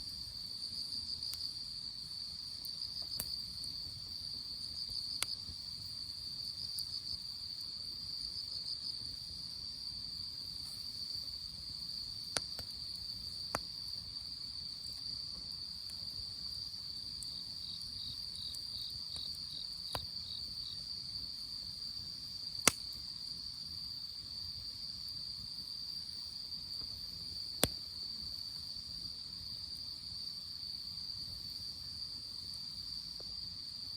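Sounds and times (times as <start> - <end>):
crickets trilling: 0.0 - 33.9
campfire popping: 2.4 - 7.2, 10.4 - 20.5, 22.4 - 23.3, 26.7 - 28.0.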